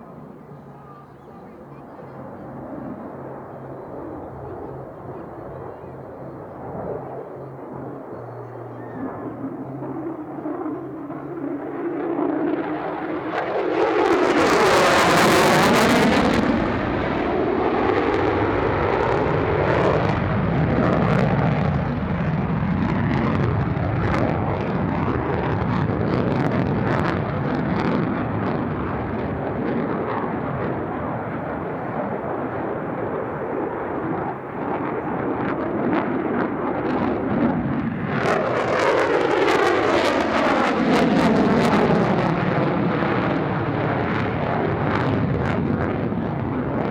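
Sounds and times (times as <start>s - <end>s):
jet engine rumble with crackles: 0.0s - 46.9s
jet flying past: 0.0s - 46.9s.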